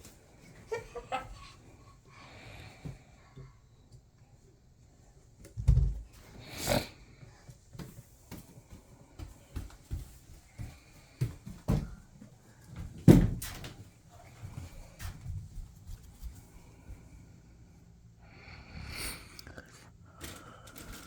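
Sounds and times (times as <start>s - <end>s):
door thumping against frame: 13.0s - 13.7s.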